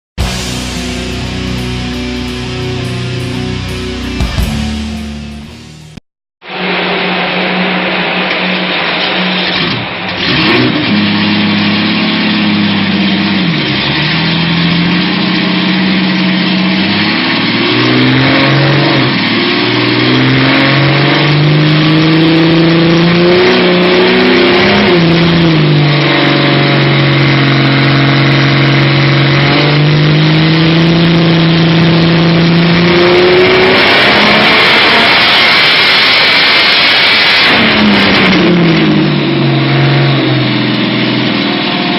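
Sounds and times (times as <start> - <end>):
supercharged engine revving: 0.2 - 6.0, 6.6 - 41.9
loud rushing noise: 0.2 - 10.7, 32.8 - 41.7.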